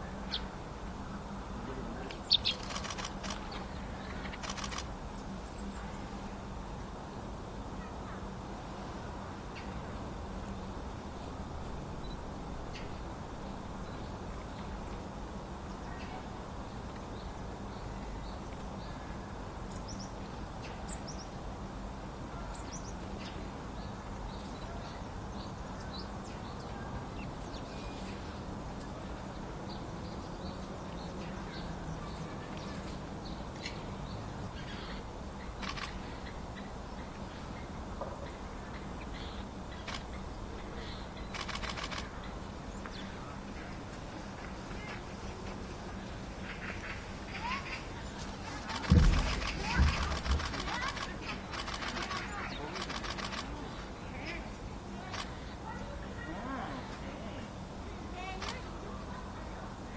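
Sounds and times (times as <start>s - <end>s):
small birds chirping: 1.7s - 6.0s, 15.6s - 21.4s, 22.5s - 43.3s, 44.7s - 55.7s.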